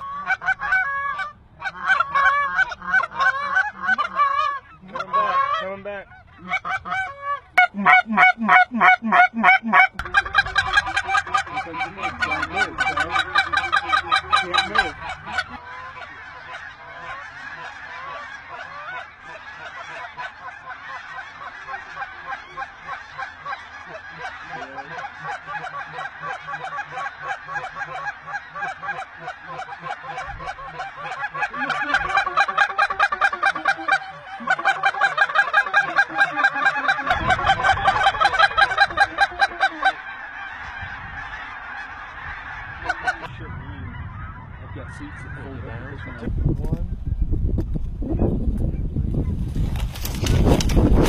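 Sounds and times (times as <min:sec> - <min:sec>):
geese honking: 0:00.0 - 0:47.2.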